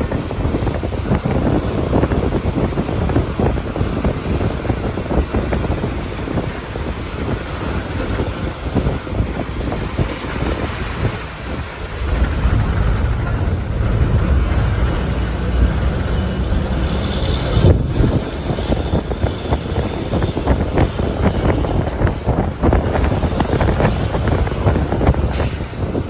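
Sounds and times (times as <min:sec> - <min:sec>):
vehicle running: 0:00.0 - 0:26.0
wind buffeting microphone: 0:00.0 - 0:26.0.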